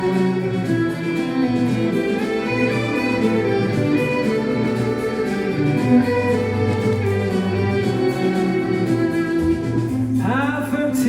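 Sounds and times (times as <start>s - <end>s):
violin and bowed strings: 0.0s - 10.3s.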